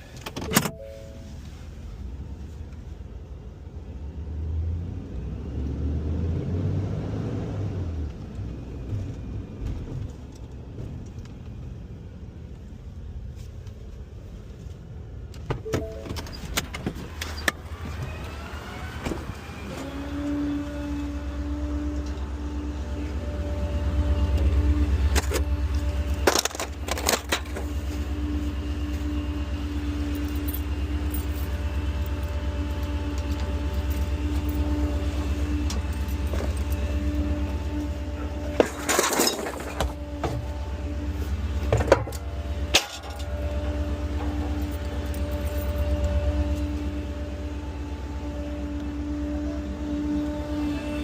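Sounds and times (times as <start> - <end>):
garbage truck engine rumbling: 13.9 - 51.0
metallic clatter and jingling: 30.0 - 34.6.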